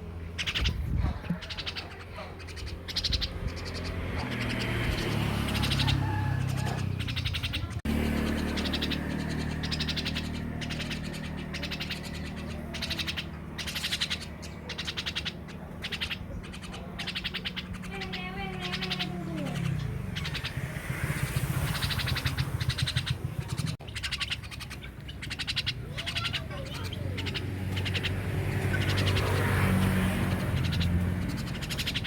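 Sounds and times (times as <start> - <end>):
starling calling harshly: 0.2 - 32.0.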